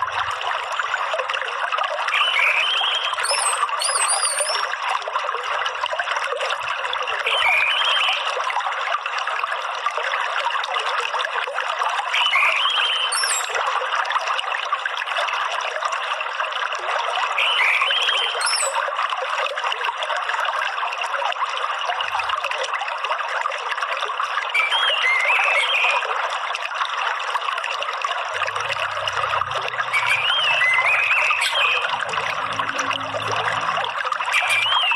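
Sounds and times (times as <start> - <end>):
trickling water: 0.0 - 34.9
bird chirping: 2.2 - 4.7, 12.2 - 13.6, 17.4 - 18.8, 29.8 - 32.3, 34.3 - 34.9
high whistles: 2.2 - 4.7, 12.2 - 13.6, 29.8 - 32.3, 34.3 - 34.9.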